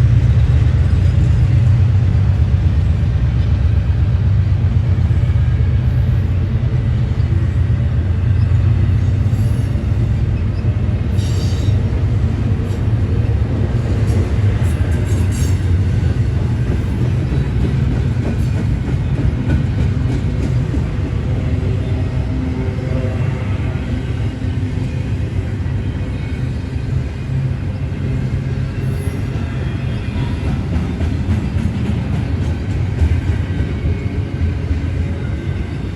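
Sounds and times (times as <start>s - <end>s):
train wheels rumbling on rail: 0.0s - 35.9s
train wheel squeals: 8.2s - 12.0s, 13.9s - 22.2s, 23.8s - 35.9s.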